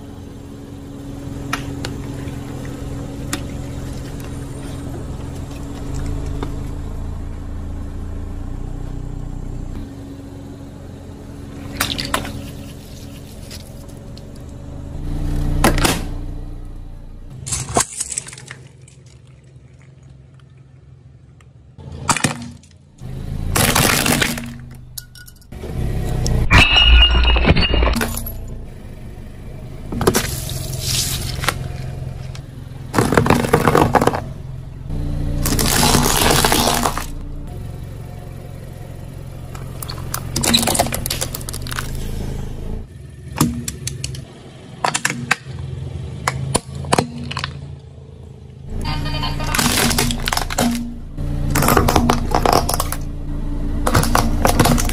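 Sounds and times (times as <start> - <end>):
low car engine hum: 0.0 - 54.9
glass shattering: 26.5 - 28.4
tyre crushing objects: 32.9 - 34.3, 35.4 - 37.2, 53.9 - 54.9.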